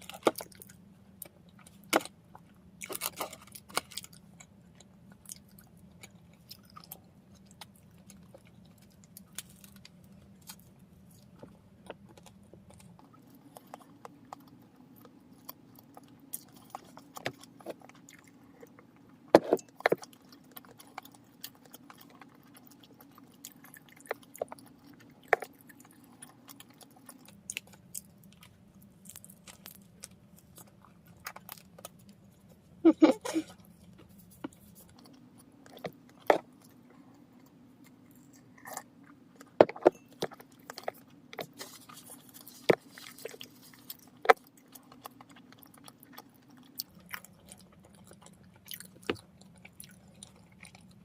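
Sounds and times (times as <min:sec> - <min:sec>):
chewing bread: 0:00.0 - 0:51.0.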